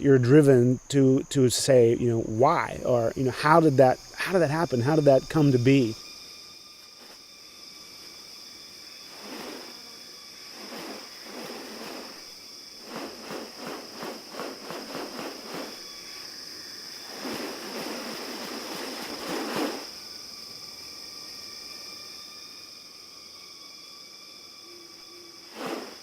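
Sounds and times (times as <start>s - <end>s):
high insect drone: 0.0s - 26.0s
short noisy bursts: 9.1s - 9.9s, 10.5s - 16.2s, 17.0s - 20.0s, 25.5s - 26.0s.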